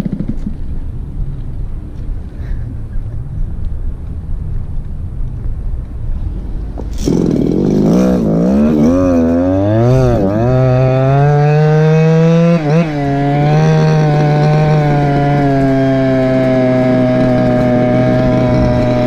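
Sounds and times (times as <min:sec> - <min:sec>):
scooter two-stroke engine revving: 0:00.0 - 0:00.6, 0:06.9 - 0:19.0.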